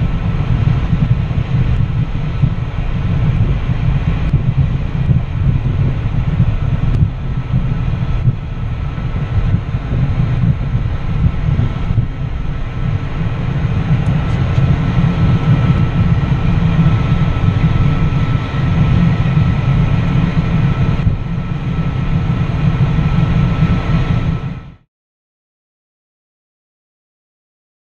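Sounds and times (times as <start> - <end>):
faint high engine whine: 0.0 - 24.8
jet cabin rumble: 0.0 - 24.8.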